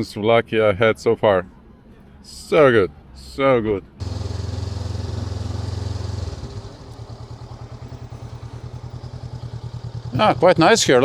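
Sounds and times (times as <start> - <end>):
motorcycle engine running: 4.0 - 11.0.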